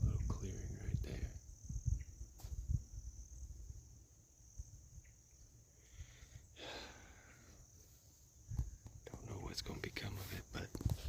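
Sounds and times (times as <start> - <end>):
insect trilling: 0.0 - 10.9
soft rustle: 7.7 - 11.0.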